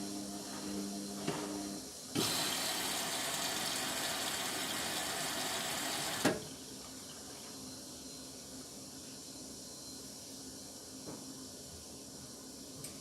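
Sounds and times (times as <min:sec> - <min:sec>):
water rushing into machine: 0:02.2 - 0:06.4.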